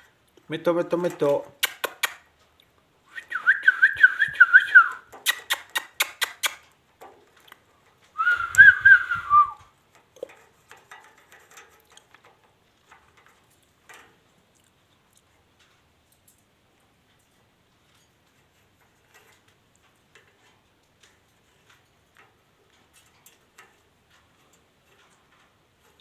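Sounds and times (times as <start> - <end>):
sharp clicks: 1.6 - 2.7, 4.4 - 6.7.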